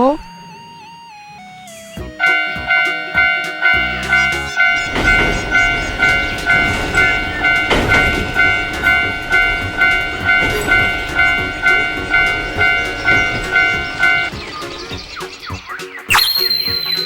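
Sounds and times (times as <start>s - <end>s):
railroad crossing bell ringing: 1.4s - 14.3s
passing train rumble: 2.0s - 15.5s.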